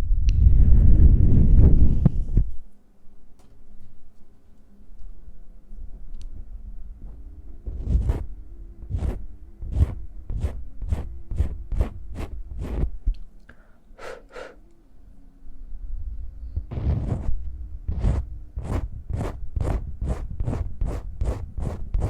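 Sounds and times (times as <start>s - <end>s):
hands rubbing near microphone: 7.7s - 13.0s, 16.6s - 22.0s.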